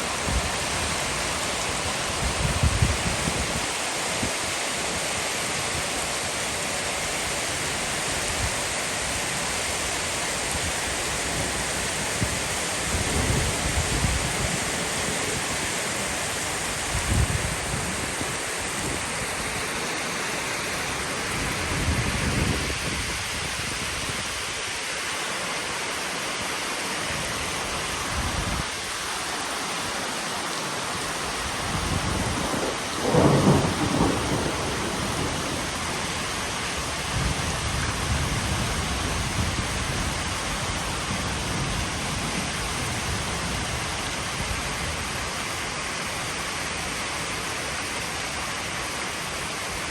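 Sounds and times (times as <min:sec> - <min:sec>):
heavy rain falling: 0:00.0 - 0:49.9
low thunder rumbles: 0:31.8 - 0:40.1.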